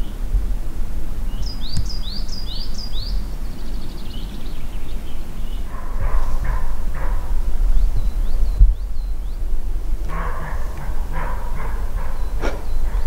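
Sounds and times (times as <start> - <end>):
songbird singing: 0.0 - 13.0
steady low rumble: 0.0 - 13.0
short rough sounds: 10.1 - 13.0.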